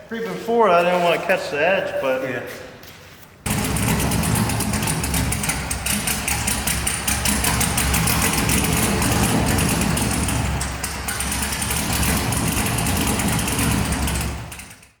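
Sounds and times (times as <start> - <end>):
rough car engine running: 3.5 - 15.0.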